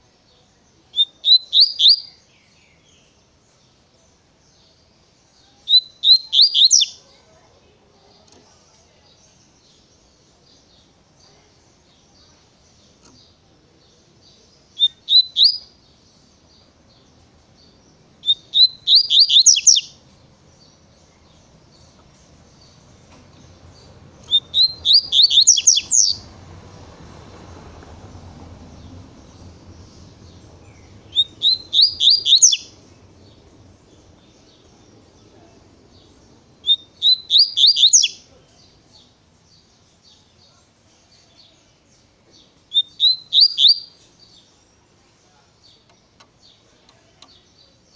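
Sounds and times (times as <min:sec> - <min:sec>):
bird singing high notes: 0:24.2 - 0:26.3, 0:30.0 - 0:32.9.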